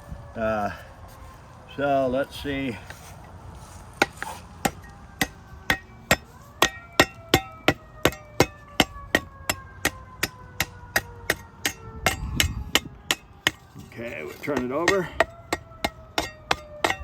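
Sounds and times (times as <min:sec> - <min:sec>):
blade ringing: 0:04.0 - 0:17.0.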